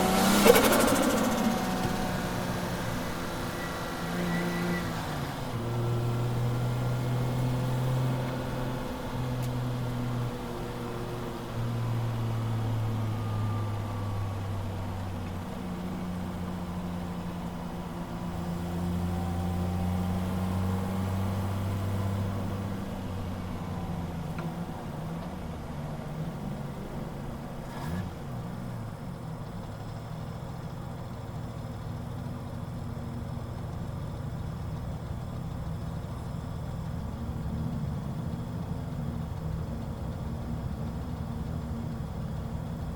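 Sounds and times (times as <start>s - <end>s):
misfiring engine revving: 0.0s - 4.8s.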